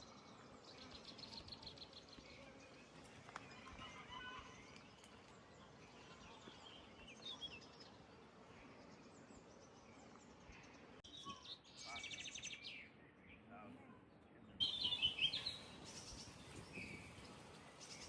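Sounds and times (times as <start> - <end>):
bird chirps: 14.3 - 18.0.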